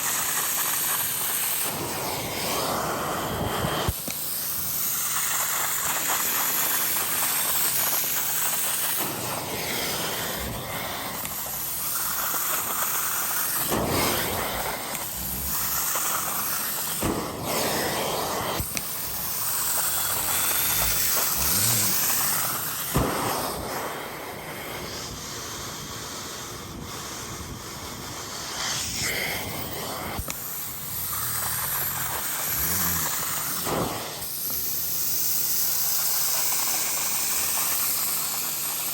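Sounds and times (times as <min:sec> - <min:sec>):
cleaning tool hissing rush: 0:00.0 - 0:38.9
vacuum motor whine: 0:13.6 - 0:23.7, 0:28.6 - 0:34.7.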